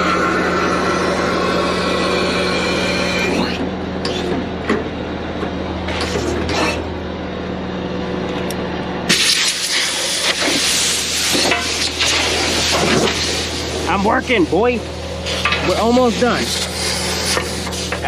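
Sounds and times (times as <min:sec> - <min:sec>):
excavator diesel engine running: 0:10.0 - 0:18.0.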